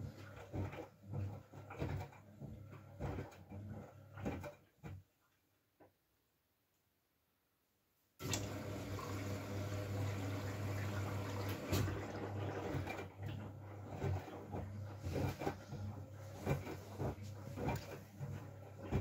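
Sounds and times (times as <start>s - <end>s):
water rushing in: 8.2s - 13.0s
knocks and splashes from drum: 10.7s - 15.6s.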